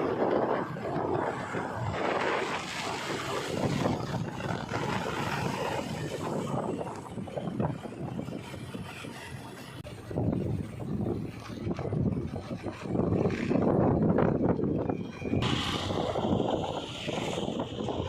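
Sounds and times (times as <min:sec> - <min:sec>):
diesel earthmoving machinery engine: 0:00.0 - 0:18.0.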